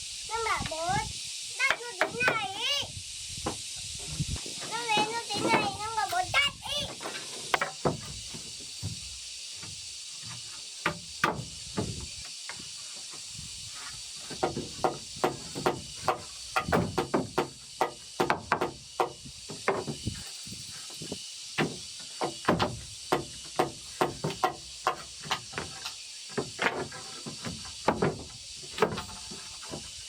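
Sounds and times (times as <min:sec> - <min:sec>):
hand tool striking wood: 0:01.6 - 0:02.4, 0:07.0 - 0:12.7, 0:13.8 - 0:20.2, 0:21.0 - 0:29.9.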